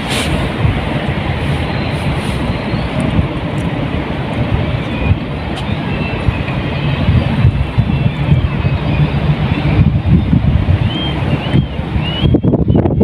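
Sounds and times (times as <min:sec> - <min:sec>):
sea waves and surf: 0:00.0 - 0:07.7.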